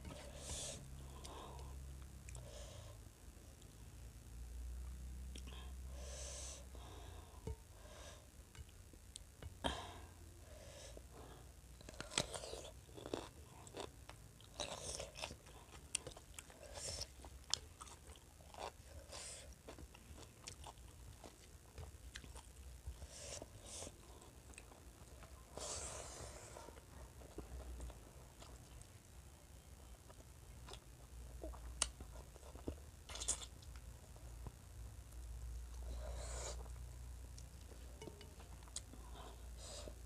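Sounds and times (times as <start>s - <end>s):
person chewing food: 11.8s - 29.0s, 29.8s - 34.6s, 37.4s - 39.6s.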